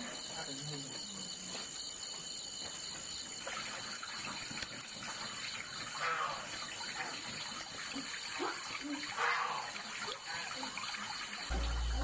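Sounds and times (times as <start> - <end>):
water running and splashing: 2.7 - 12.0.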